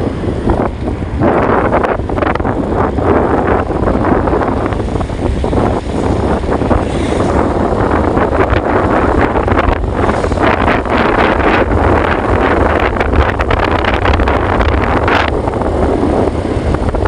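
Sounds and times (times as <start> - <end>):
constant low rumble: 0.0 - 17.0
wind buffeting microphone: 0.0 - 17.0.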